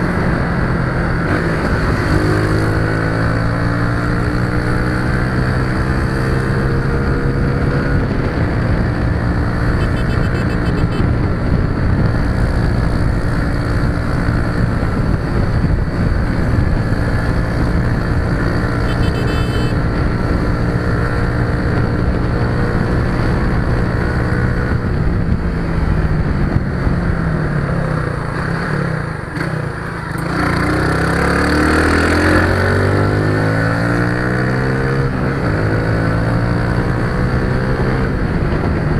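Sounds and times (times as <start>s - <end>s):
wind or road noise: 0.0s - 38.9s
vehicle engine running: 14.2s - 20.1s.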